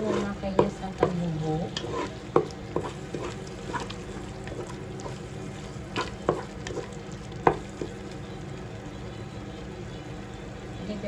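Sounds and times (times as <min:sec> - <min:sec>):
spoon stirring in a pot: 0:00.0 - 0:08.5
steady low hum: 0:00.0 - 0:11.0.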